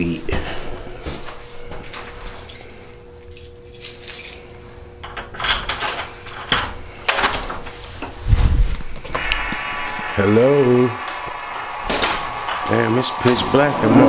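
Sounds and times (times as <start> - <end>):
keys jangling in a lock: 1.8 - 7.4.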